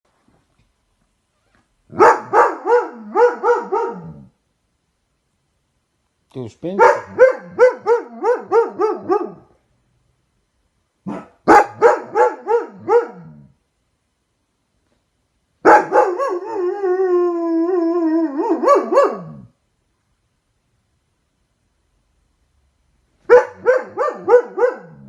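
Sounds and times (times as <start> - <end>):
dog barking: 1.9 - 4.3, 6.8 - 9.5, 11.0 - 13.4, 15.6 - 16.6, 18.4 - 19.5, 23.2 - 25.0
dog howling and yelping: 7.0 - 9.5, 15.8 - 19.5.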